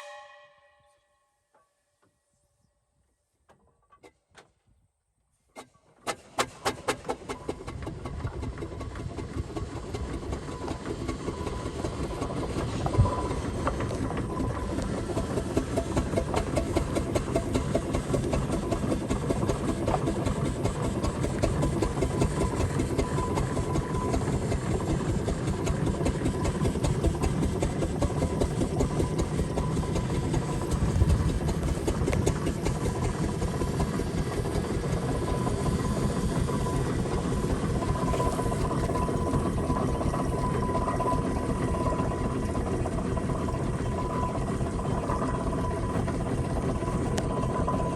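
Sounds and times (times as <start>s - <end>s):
steam engine rhythmic beat: 14.3s - 41.9s.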